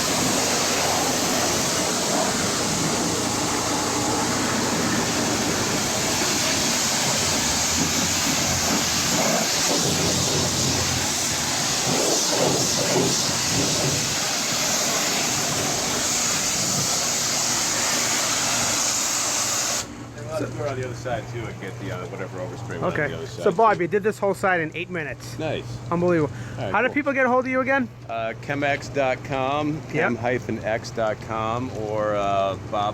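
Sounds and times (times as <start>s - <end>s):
pressure washer spraying water: 0.0s - 19.9s.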